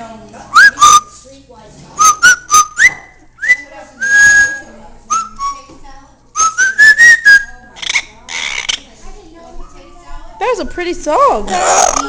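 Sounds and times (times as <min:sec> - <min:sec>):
parrot whistling a tune: 0:00.5 - 0:01.2, 0:02.0 - 0:05.7, 0:06.4 - 0:08.5.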